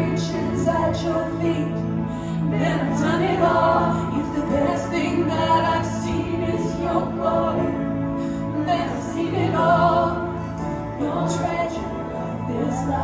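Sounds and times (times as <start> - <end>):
voices singing along: 2.4 - 13.0
worship band playing: 2.6 - 13.0.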